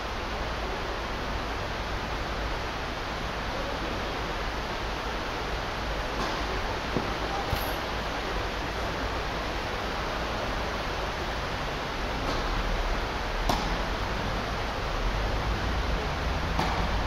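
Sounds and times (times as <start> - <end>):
tennis racket hitting ball: 13.5 - 13.8, 16.5 - 16.9.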